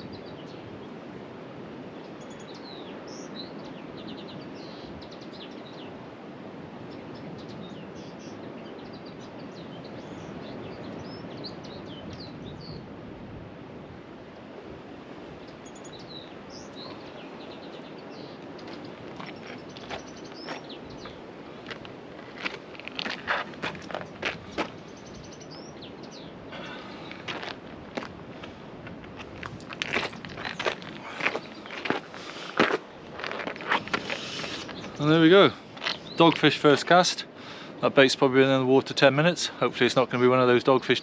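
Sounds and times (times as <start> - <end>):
small birds chirping: 2.0 - 6.0, 6.8 - 12.8, 15.3 - 41.0
steady rushing noise: 11.9 - 40.9.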